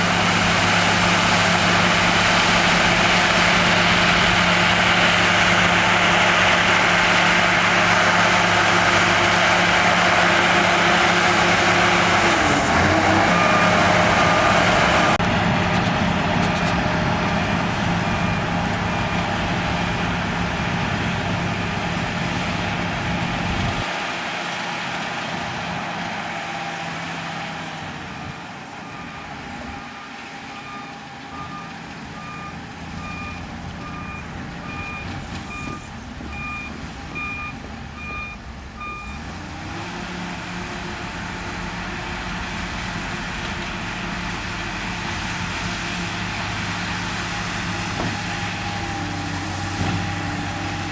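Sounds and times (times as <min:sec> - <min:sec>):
diesel machinery rumbling: 0:00.0 - 0:50.9
reversing alarm beeps: 0:28.8 - 0:39.2.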